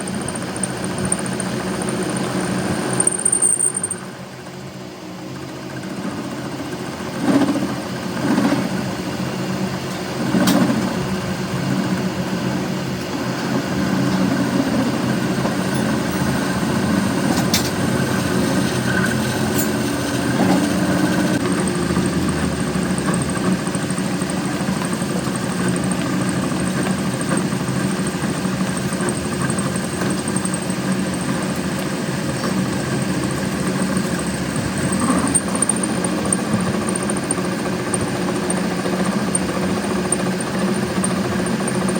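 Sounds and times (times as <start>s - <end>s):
machine motor running: 13.3s - 41.9s.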